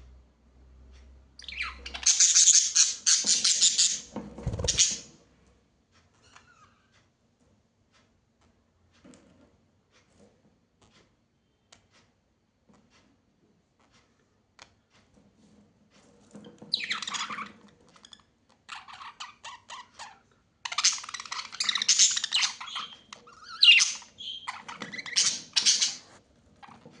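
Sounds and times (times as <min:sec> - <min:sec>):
birds squawking and chattering: 0:01.4 - 0:05.1, 0:16.7 - 0:17.6, 0:18.7 - 0:26.8.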